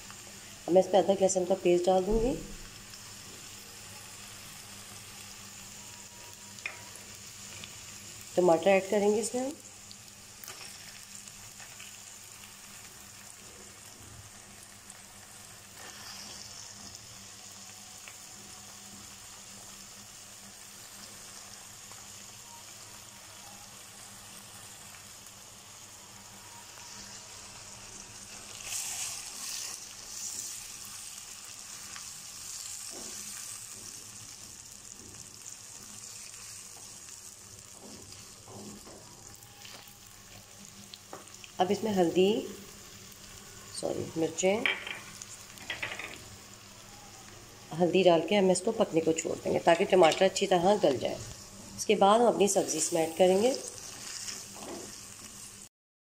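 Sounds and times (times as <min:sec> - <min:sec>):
food sizzling in hot oil: 0:00.0 - 0:55.7
spatula stirring in wok: 0:26.8 - 0:40.0, 0:52.7 - 0:55.3.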